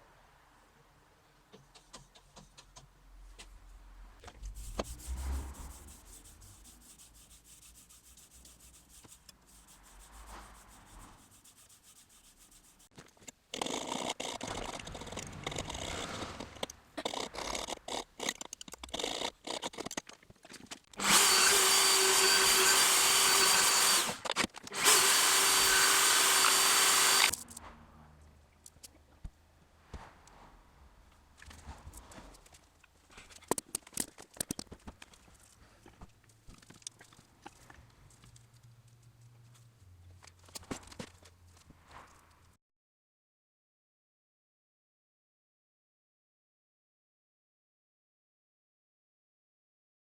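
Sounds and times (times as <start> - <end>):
power tool whining on steel: 21.0 - 27.4.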